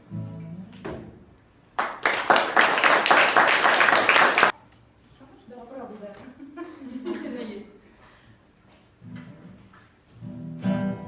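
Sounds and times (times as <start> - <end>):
applause: 1.8 - 4.5.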